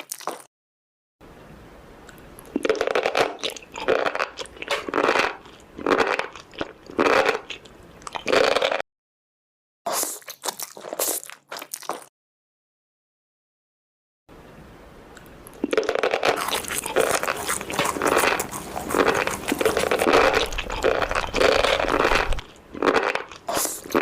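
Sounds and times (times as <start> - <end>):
crunchy food being chewed: 0.0 - 0.5, 2.1 - 8.8, 9.9 - 12.1, 15.2 - 24.0.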